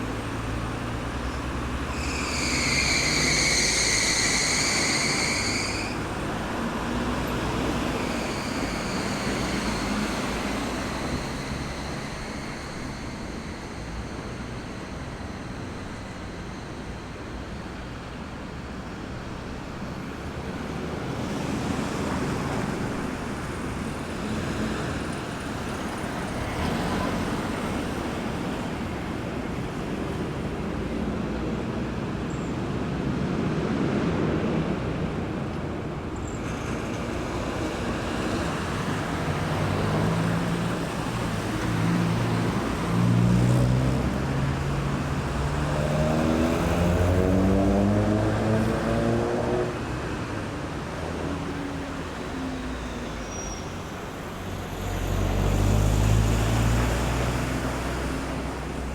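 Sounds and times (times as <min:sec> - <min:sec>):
cars passing: 0:00.0 - 0:58.9
heavy vehicle engine accelerating: 0:36.4 - 0:58.9.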